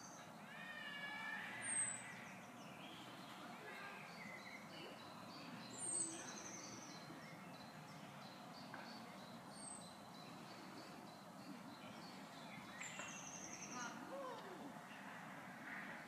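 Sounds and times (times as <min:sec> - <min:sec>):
low background hiss: 0:00.0 - 0:16.0.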